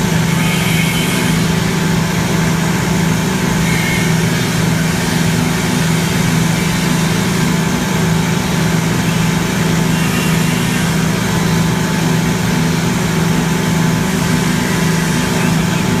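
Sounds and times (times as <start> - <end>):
machinery humming: 0.0 - 16.0
constant high tones: 0.1 - 1.7.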